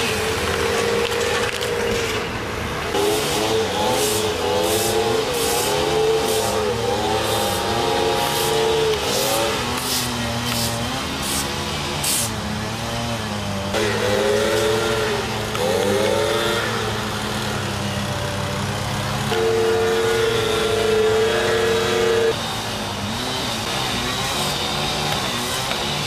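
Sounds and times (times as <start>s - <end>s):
engine revving: 0.0s - 26.0s.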